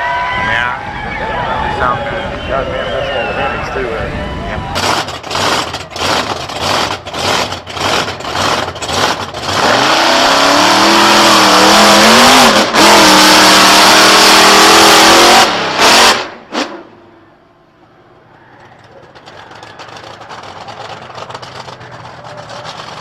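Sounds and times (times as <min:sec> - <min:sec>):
racing engine revving: 0:04.8 - 0:16.9.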